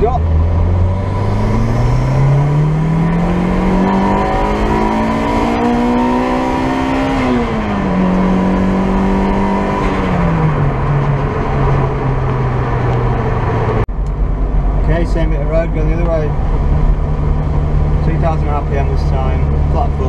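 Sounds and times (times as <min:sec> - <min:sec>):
car engine revving under load: 0:00.0 - 0:20.0
road and wind noise: 0:00.0 - 0:20.0.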